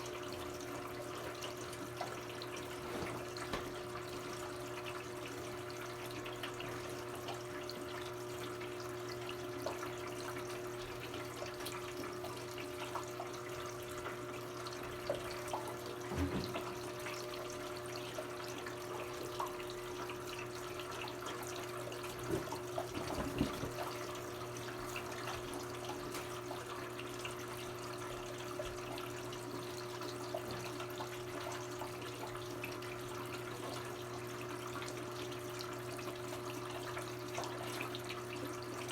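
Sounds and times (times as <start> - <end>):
water running into washing machine: 0.0 - 38.9.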